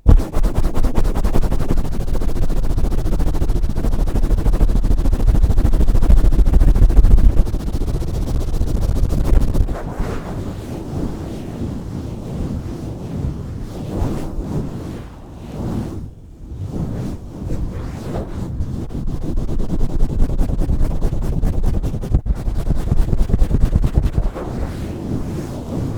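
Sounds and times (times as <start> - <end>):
heavy rumble: 0.0 - 10.0
hands rubbing on a microphone: 0.0 - 10.4, 16.7 - 25.9.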